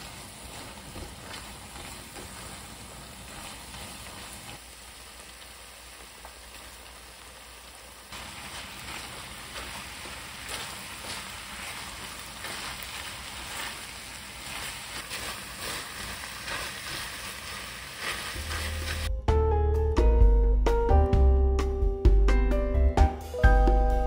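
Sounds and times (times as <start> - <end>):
spatula stirring in a pan: 0.0 - 4.7, 8.1 - 19.1
meat sizzling in a pan: 0.0 - 19.1
music with piano-like notes: 18.5 - 24.0.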